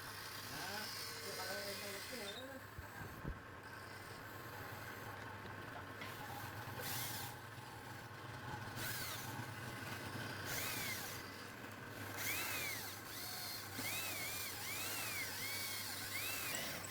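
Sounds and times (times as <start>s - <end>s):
wood lathe motor hum: 0.0s - 2.8s, 3.7s - 16.9s
tool hissing on spinning wood: 12.2s - 16.9s.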